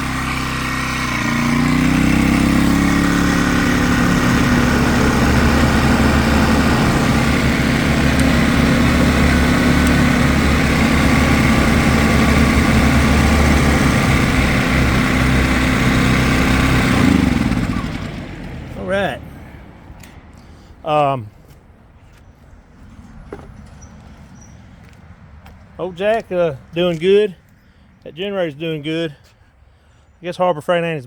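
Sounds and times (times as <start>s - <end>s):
angle grinder spinning: 0.0s - 18.0s
portable generator running: 0.0s - 20.2s.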